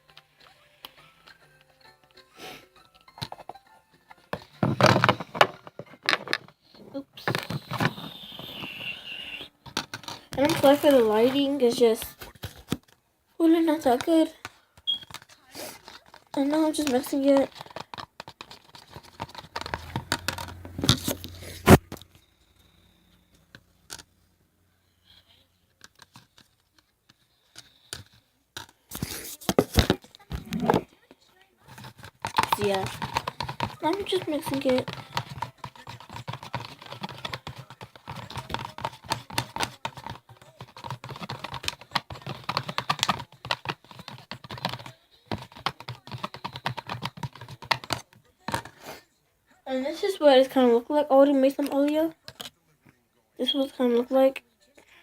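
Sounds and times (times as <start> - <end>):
utensil scraping slime in cup: 7.2 - 12.0, 15.6 - 21.8, 31.7 - 48.6.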